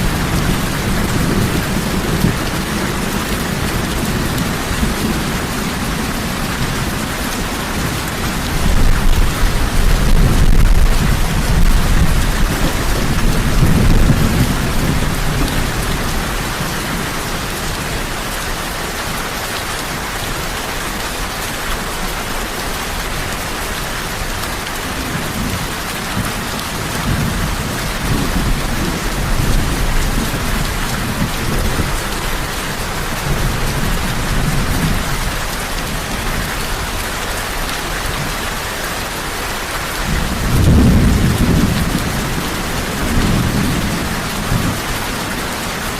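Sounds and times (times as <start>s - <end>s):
heavy rain falling: 0.0s - 45.9s
thunder rolling: 40.1s - 45.4s.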